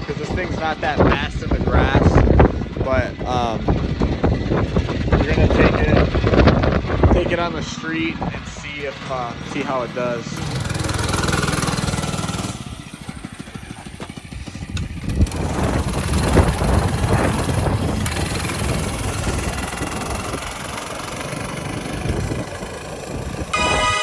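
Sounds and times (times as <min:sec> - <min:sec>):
small engine revving: 0:09.1 - 0:24.0.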